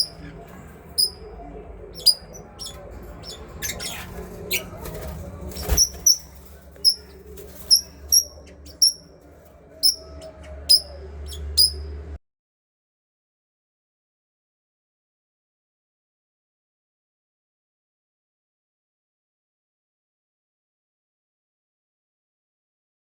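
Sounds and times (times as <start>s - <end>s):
parrots chirping: 0.0s - 9.2s, 9.8s - 12.0s
low hum: 0.0s - 12.2s.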